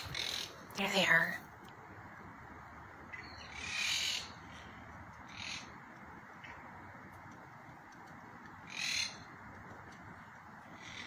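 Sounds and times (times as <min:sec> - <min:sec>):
parakeets calling: 0:00.0 - 0:01.4, 0:03.0 - 0:06.8, 0:08.6 - 0:09.4, 0:10.6 - 0:11.0.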